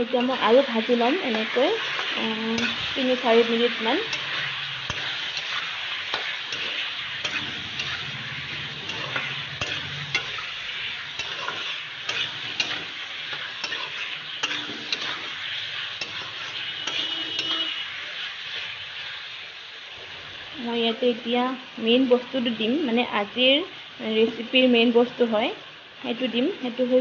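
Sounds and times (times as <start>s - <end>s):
metal spatula scraping a pan: 0.0s - 19.5s
food sizzling in oil: 0.0s - 27.0s.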